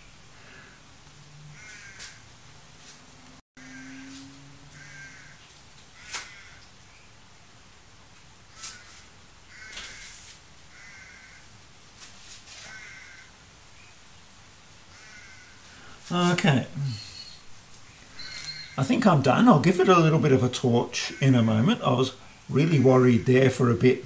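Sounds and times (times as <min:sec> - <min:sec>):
short bird calls: 0:16.7 - 0:19.0.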